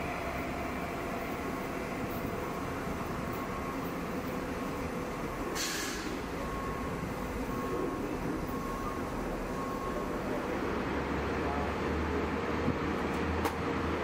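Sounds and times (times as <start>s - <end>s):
train rumbling: 0.0s - 14.0s
air hiss: 5.6s - 6.2s.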